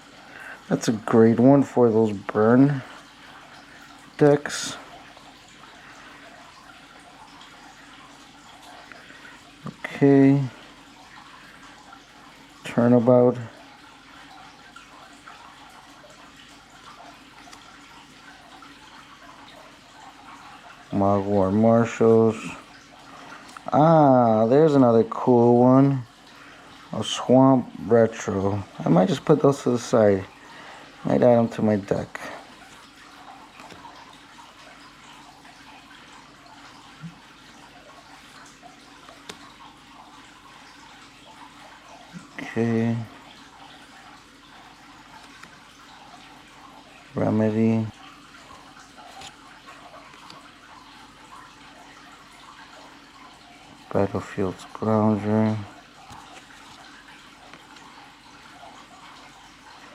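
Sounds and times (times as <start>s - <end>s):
playing cards rustling: 56.0s - 57.9s.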